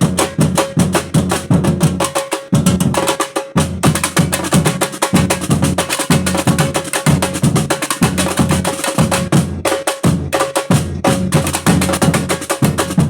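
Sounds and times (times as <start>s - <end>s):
samba drum ensemble: 0.0s - 13.0s
deep bass drums beating: 3.6s - 13.0s.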